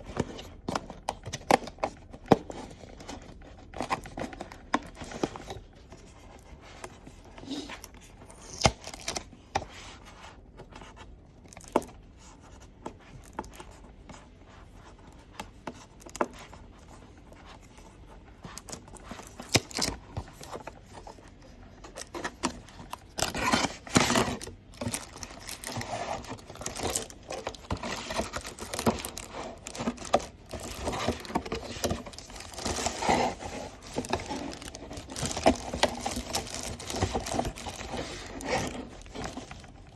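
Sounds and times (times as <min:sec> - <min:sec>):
packaging rustling and crinkling: 0:17.6 - 0:39.9
box taps and scrapes: 0:18.7 - 0:39.9.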